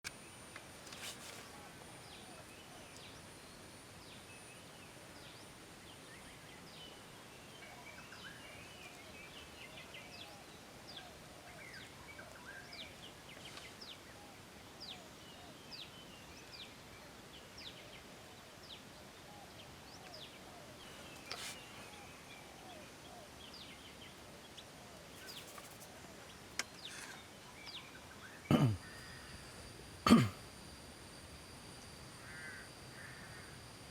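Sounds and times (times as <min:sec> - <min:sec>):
faint high-pitched hum: 0:00.1 - 0:33.9
lower arched bird calls: 0:32.2 - 0:33.6.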